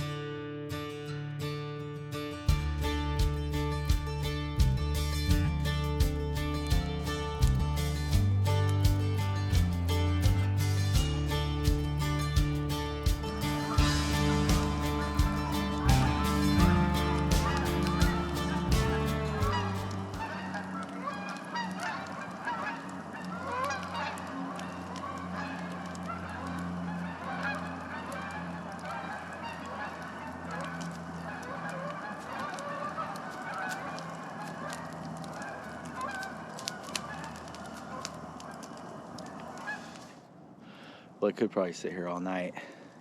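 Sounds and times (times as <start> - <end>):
campfire crackling: 0.0 - 43.0
geese honking: 11.1 - 41.0.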